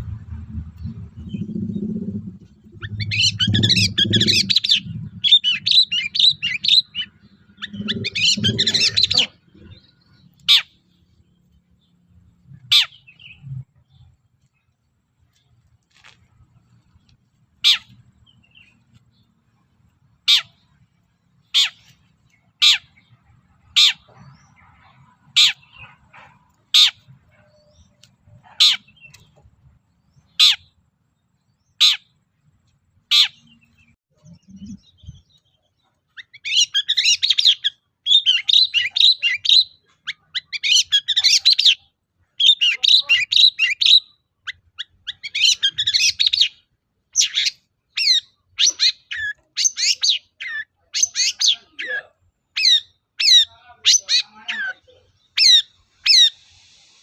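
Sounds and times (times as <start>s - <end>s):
shrike singing: 0.3s - 10.7s.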